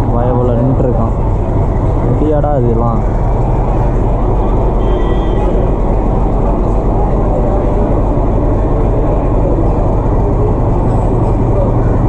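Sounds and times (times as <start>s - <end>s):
diesel locomotive engine rumbling: 0.0s - 12.0s.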